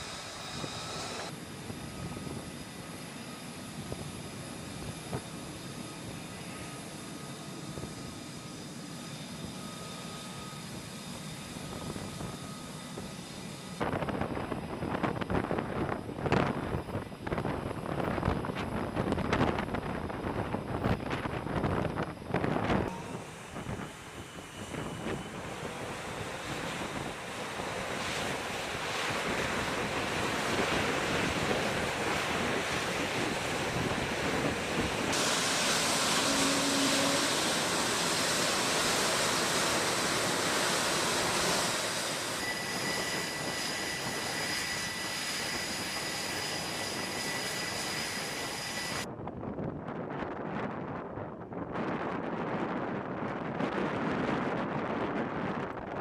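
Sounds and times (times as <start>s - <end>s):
steady rushing roar: 0.0s - 9.4s, 13.0s - 49.1s
wind buffeting microphone: 13.8s - 45.8s, 49.0s - 56.0s.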